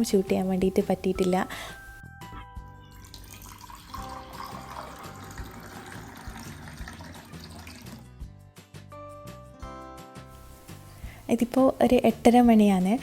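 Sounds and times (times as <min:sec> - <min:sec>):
faint background music: 0:00.0 - 0:13.0
tap water running into sink: 0:03.1 - 0:08.1.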